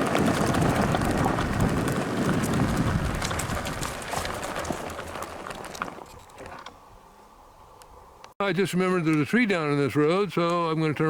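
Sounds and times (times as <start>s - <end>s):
dirt bike riding on rough road: 0.0s - 6.7s.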